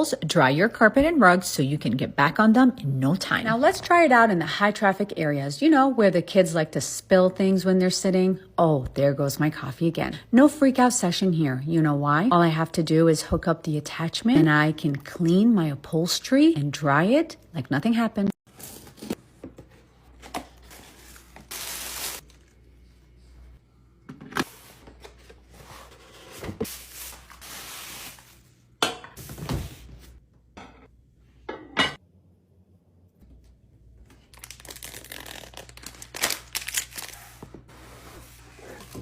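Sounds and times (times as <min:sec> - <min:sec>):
packaging rustling and crinkling: 0:34.2 - 0:37.6.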